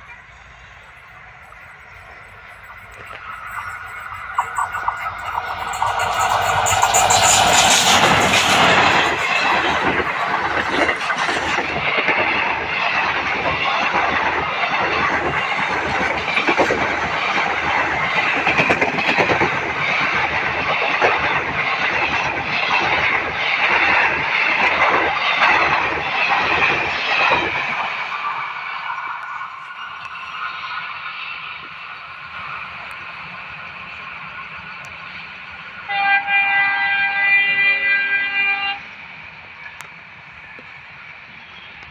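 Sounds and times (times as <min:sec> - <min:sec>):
train coaches passing: 0:00.0 - 0:41.9
wheels clicking over rail joints: 0:01.6 - 0:28.0.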